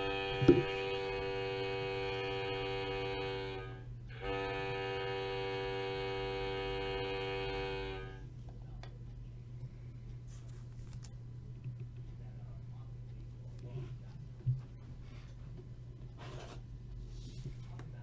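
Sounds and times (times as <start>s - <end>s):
steady pitched horn tone: 0.0s - 8.3s
thump: 0.4s - 0.7s.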